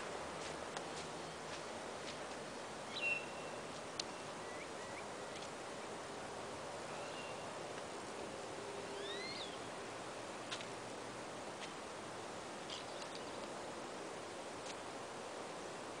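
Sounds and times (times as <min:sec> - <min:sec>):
steady outdoor hiss: 0:00.0 - 0:16.0
small birds chirping: 0:12.7 - 0:13.6.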